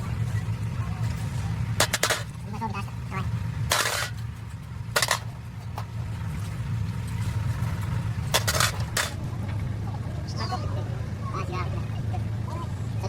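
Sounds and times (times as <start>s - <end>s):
hand tools clinking on metal: 0.0s - 9.2s.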